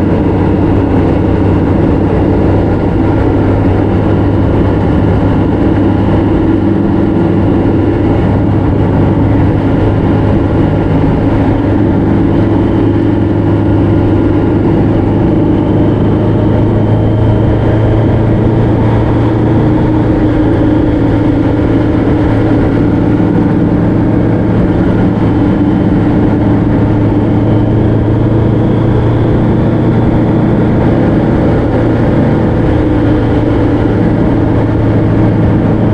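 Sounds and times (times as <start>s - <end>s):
road and wind noise: 0.0s - 35.9s
vehicle engine cruising: 0.0s - 35.9s.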